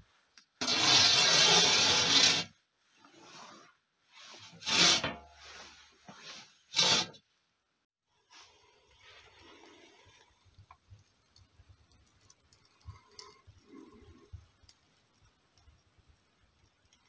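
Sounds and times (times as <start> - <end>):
bricks scraping on stone: 0.6 - 2.5.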